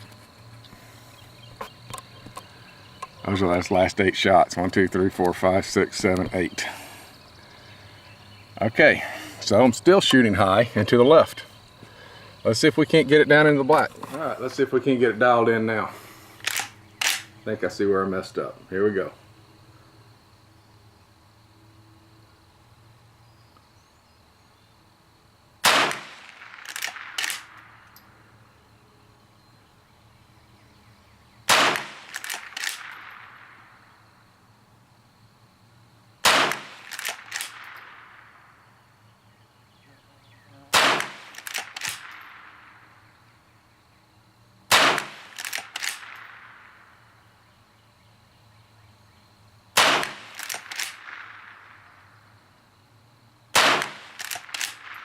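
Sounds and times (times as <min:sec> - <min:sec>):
rifle lever metallic clacks: 0:16.4 - 0:17.3, 0:41.3 - 0:42.3
rifle shots: 0:16.4 - 0:17.4, 0:25.6 - 0:27.8, 0:31.5 - 0:33.7, 0:36.2 - 0:38.5, 0:40.7 - 0:42.8, 0:44.7 - 0:46.9, 0:49.8 - 0:52.1, 0:53.5 - 0:55.0.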